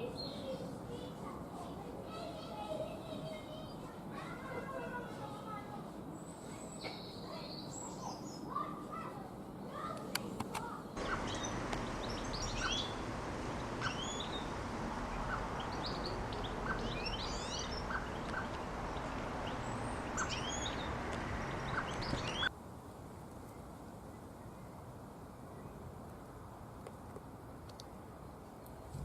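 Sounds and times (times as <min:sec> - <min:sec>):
songbirds singing and chirping: 0:00.0 - 0:01.2, 0:06.0 - 0:08.7, 0:09.5 - 0:22.5
background hiss and hum: 0:09.7 - 0:29.0.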